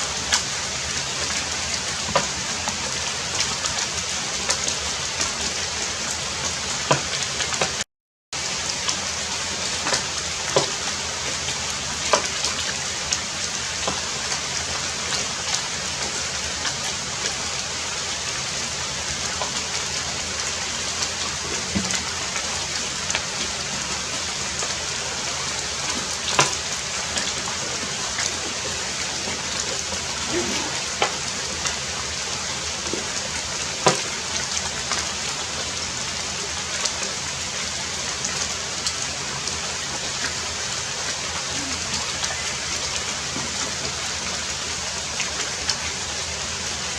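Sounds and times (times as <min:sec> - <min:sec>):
raindrops striking close by: 0:00.0 - 0:07.8, 0:08.4 - 0:46.9
heavy rain: 0:08.4 - 0:46.9.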